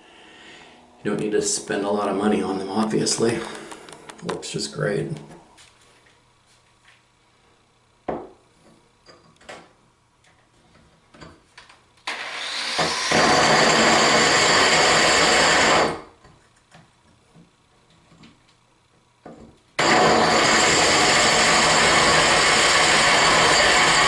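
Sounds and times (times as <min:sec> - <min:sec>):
electric drill grinding into tile: 0:12.0 - 0:16.1, 0:19.8 - 0:24.0.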